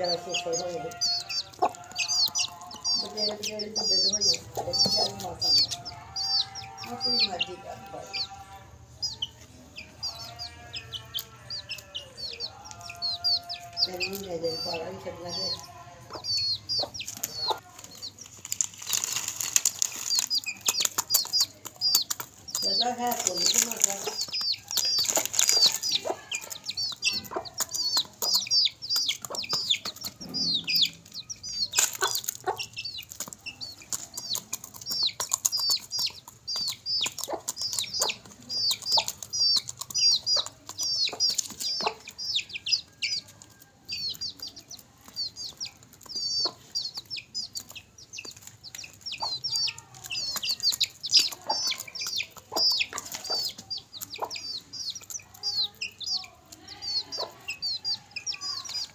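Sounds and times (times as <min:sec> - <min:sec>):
birds pecking at food: 0:00.0 - 0:58.9
chicks peeping: 0:00.0 - 0:58.9.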